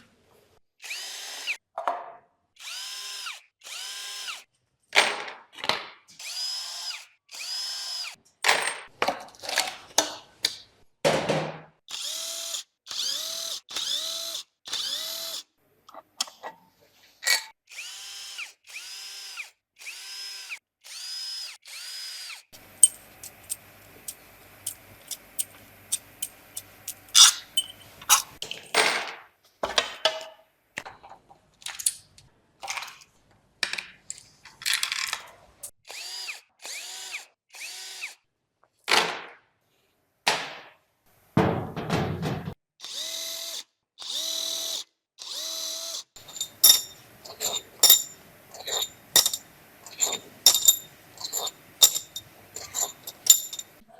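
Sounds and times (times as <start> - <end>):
power drill spinning: 0.8 - 1.6, 2.6 - 4.4, 6.2 - 8.2, 11.9 - 15.4, 17.7 - 28.4, 35.9 - 38.2, 42.8 - 53.8
metal parts clanking: 22.8 - 23.6, 25.1 - 28.8, 46.2 - 53.7.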